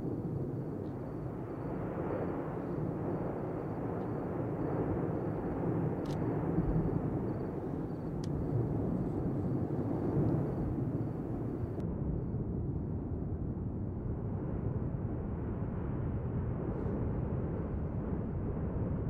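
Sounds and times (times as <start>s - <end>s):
volcano erupting with low roar: 0.0s - 12.1s
faint ticks: 8.1s - 8.4s.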